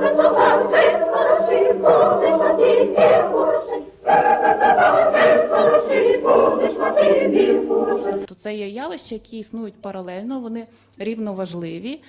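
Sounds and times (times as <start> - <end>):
group of voices singing a cappella: 0.0 - 8.3.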